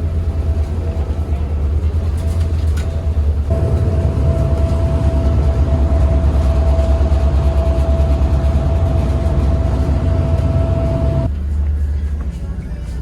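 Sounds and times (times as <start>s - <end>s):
ferry engines rumbling: 0.0s - 13.0s
thin steady whine: 3.0s - 11.3s.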